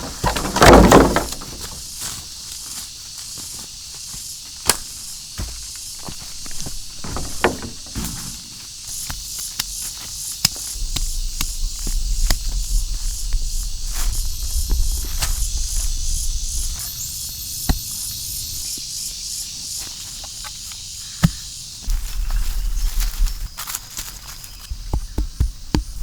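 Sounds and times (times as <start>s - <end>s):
insects buzzing: 0.0s - 26.0s
sharp clicks and knocks: 6.4s - 9.7s.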